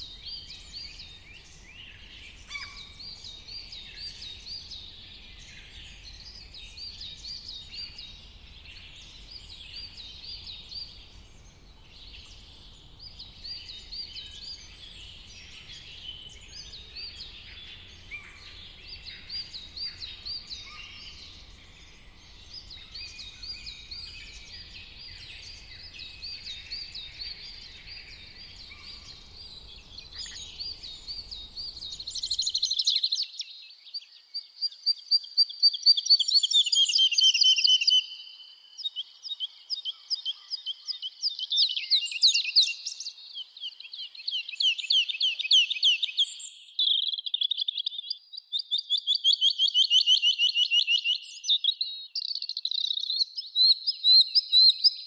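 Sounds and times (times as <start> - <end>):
close bird singing fast runs: 0.0 - 33.0
songbirds singing: 0.0 - 55.0.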